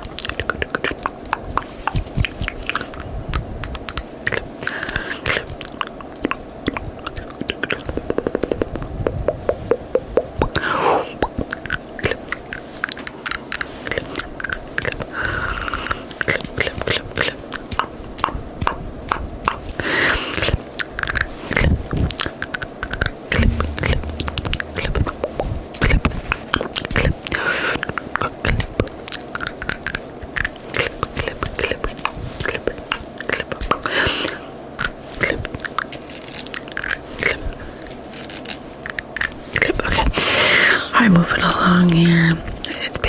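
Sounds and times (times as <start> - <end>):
wet tongue and lip clicks: 0.0 - 24.9, 28.4 - 33.9.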